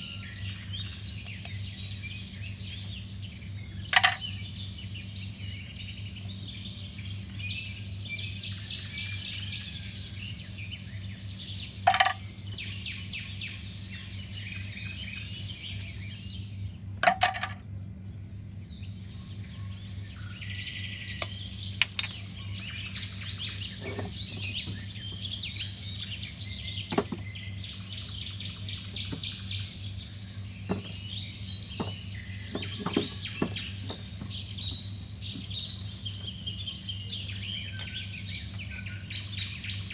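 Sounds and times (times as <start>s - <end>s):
small birds chirping: 0.0s - 16.8s, 18.0s - 39.9s
steady low hum: 9.9s - 39.9s
sharp knocks: 30.7s - 31.0s, 31.8s - 34.4s.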